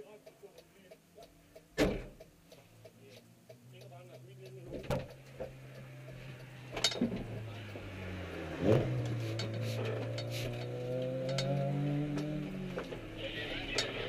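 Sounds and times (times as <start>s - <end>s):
car engine running: 4.6s - 14.0s.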